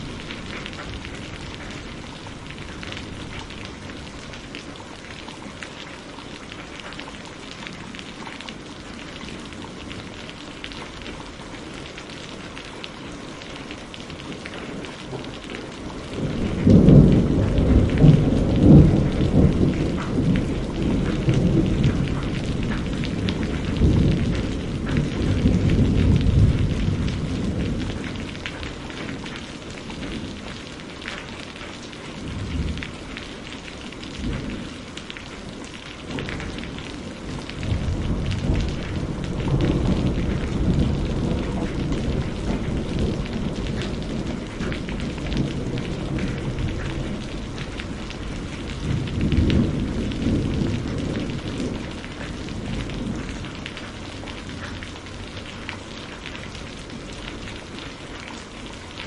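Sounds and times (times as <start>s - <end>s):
rain hissing: 0.0s - 59.0s
rolling thunder rumbles: 14.3s - 57.8s.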